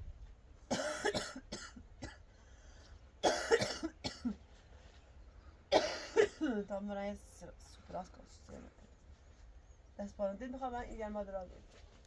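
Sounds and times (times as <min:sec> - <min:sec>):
woman coughing: 0:00.7 - 0:02.2, 0:03.2 - 0:04.4, 0:05.7 - 0:06.6.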